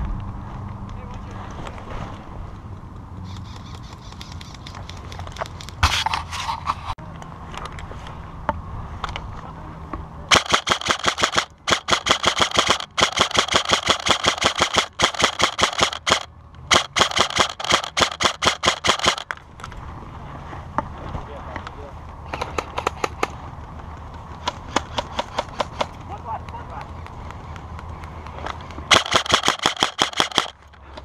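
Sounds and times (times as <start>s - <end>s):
airsoft rifle firing bursts: 10.3s - 19.2s, 28.9s - 30.6s.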